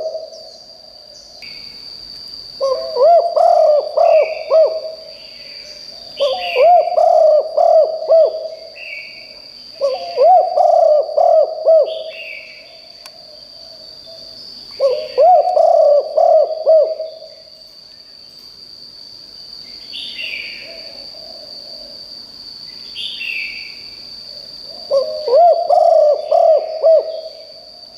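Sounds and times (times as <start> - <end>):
dove cooing: 0.0 - 0.5, 2.6 - 5.1, 6.2 - 8.7, 9.8 - 12.4, 14.8 - 17.4, 20.6 - 22.0, 24.7 - 27.6.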